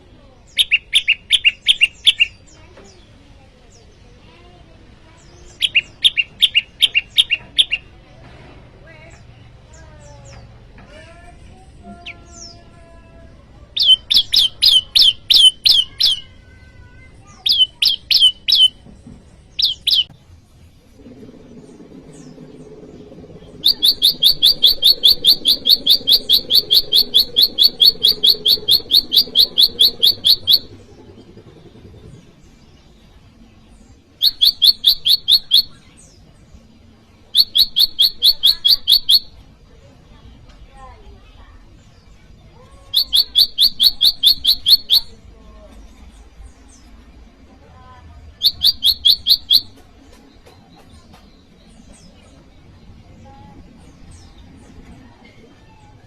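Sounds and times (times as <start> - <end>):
songbird chip notes: 19.6 - 54.9.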